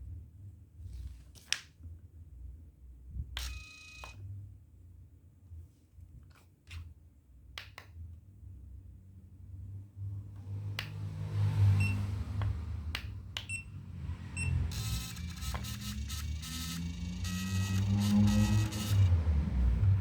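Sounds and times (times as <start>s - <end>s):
short high beeps: 14.4s - 19.1s
receipt printer buzzing chatter: 14.4s - 19.2s
sharp clicks: 14.7s - 19.1s.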